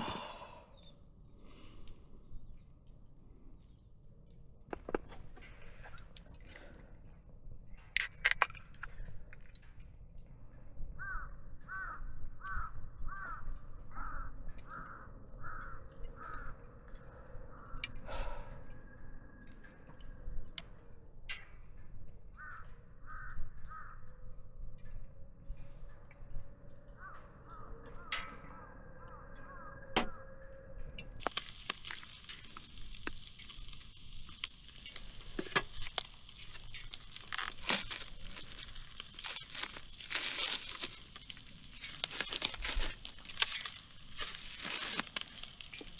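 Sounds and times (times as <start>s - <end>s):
crinkling tearing noise: 4.6s - 10.0s, 31.2s - 45.9s.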